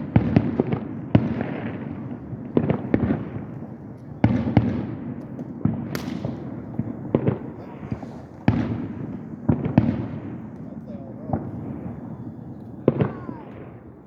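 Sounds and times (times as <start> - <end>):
fireworks booming: 0.0 - 14.0.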